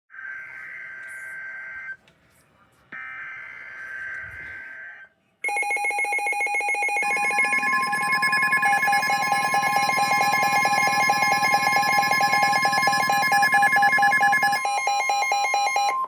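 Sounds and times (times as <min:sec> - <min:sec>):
warbling electronic alarm: 0:00.1 - 0:02.0, 0:03.0 - 0:16.0
steady alert tone: 0:05.5 - 0:16.0.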